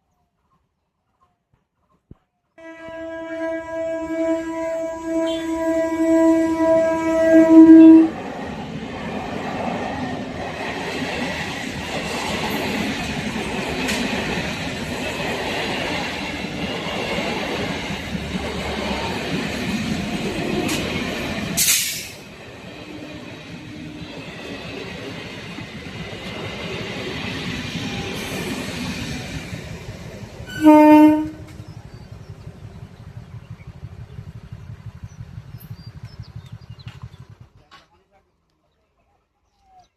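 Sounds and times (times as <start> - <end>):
train horn blast: 2.6 - 8.2, 30.5 - 31.6
train wheels rattling over rails: 7.9 - 37.9.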